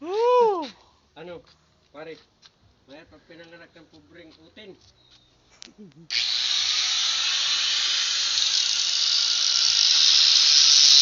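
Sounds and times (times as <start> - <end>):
arc welding hissing crackle: 6.2 - 11.0.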